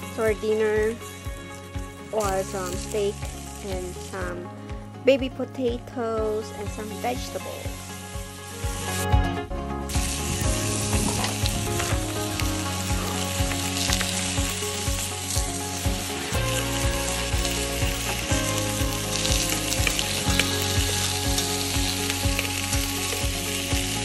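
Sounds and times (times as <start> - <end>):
vegetables sizzling in a pot: 0.0 - 4.4, 6.4 - 9.1, 9.9 - 24.0
background music with steady beat: 0.0 - 24.0.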